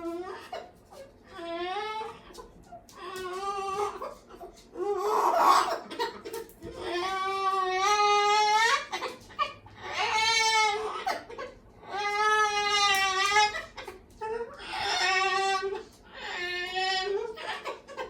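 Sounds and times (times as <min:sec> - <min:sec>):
harsh cockatoo squawk: 0:03.4 - 0:06.2, 0:06.8 - 0:18.0
cockatoo wailing: 0:06.7 - 0:18.0.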